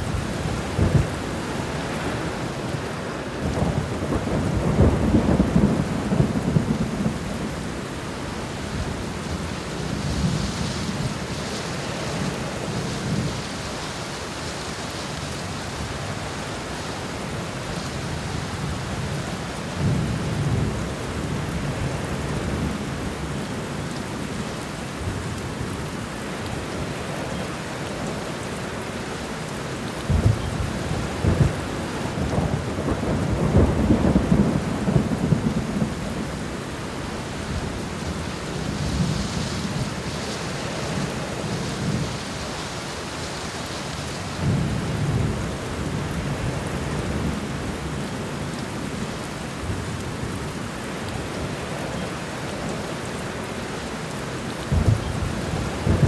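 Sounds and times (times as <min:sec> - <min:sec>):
rolling thunder: 0:00.0 - 0:02.5, 0:03.4 - 0:07.8, 0:30.1 - 0:36.6, 0:54.7 - 0:56.0
steady rain: 0:00.0 - 0:56.0.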